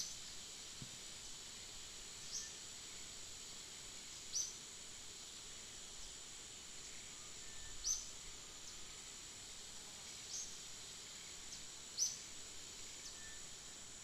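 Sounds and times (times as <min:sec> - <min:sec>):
high-pitched insect drone: 0:09.8 - 0:14.0.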